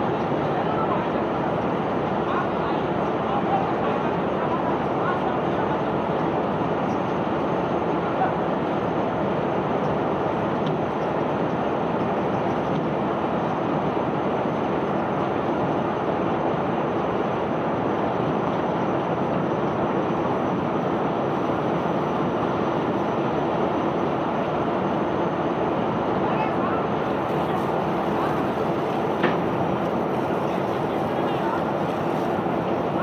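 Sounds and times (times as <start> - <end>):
unloading machinery rumbling: 27.0 - 33.0
cargo pouring: 27.1 - 33.0.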